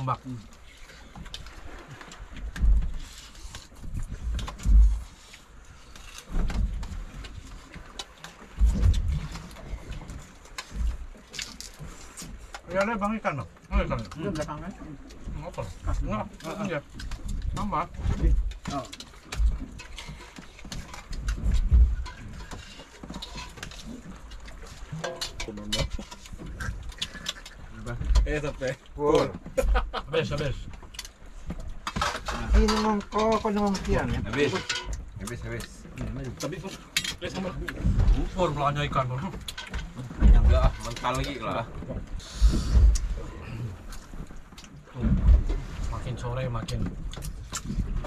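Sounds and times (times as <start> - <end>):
wind rumbling on microphone: 1.4 - 5.1, 20.8 - 23.5, 37.2 - 48.0
wind buffeting microphone: 20.8 - 22.5.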